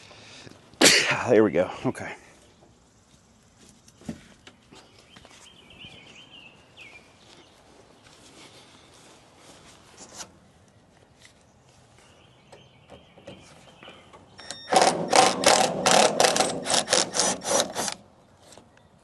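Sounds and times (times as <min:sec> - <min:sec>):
power screwdriver pulsing: 0:14.5 - 0:18.0.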